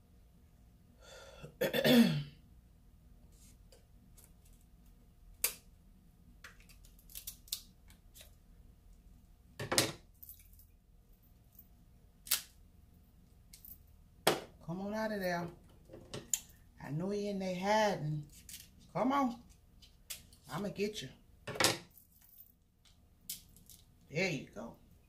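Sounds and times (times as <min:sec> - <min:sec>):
crab shell cracking: 0:06.4 - 0:08.0.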